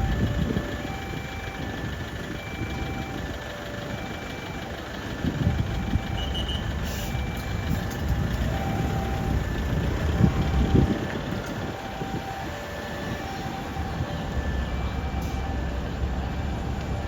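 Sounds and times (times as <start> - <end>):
two-tone level crossing alarm: 0.0 - 15.8
engines idling: 0.0 - 17.0.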